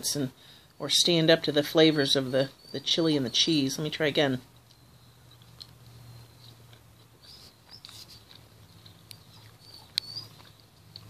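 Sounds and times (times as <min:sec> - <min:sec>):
faint chewing: 0:04.5 - 0:11.0
wet mouth clicks: 0:04.6 - 0:11.0.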